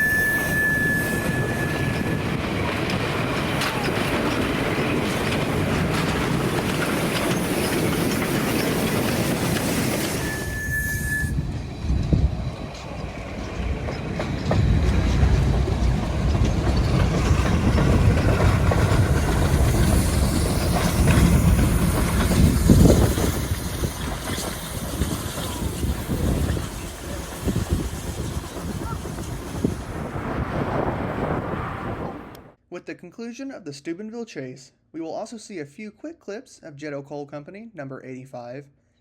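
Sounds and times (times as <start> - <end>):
single high tone: 0.0 - 2.2, 10.2 - 11.4
steam engine running: 0.0 - 30.5
deep rumble: 11.3 - 24.2, 25.6 - 32.6.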